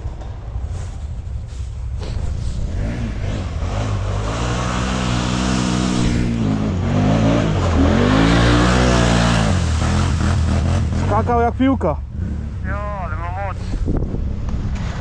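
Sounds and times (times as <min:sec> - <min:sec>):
atv engine revving hard: 0:02.6 - 0:11.4, 0:12.1 - 0:12.7.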